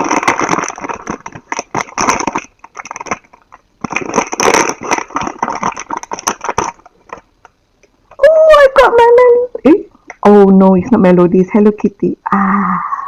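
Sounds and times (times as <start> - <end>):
packaging crinkling and tearing: 0.0 - 7.6.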